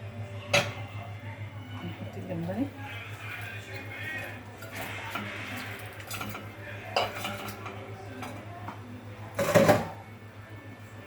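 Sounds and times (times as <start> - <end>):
metal cookware clattering on pot: 4.7 - 8.4, 9.4 - 10.0.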